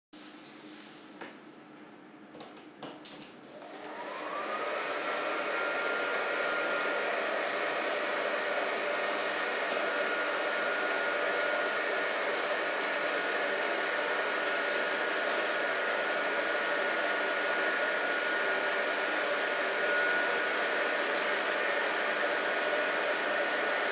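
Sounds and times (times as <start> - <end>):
blower fan whirring: 0.2 - 23.9.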